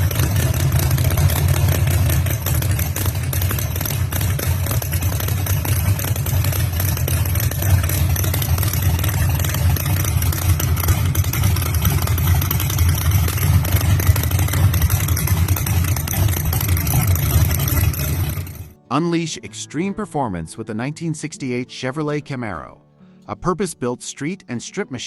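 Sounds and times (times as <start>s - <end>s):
car engine idling: 0.0s - 18.8s.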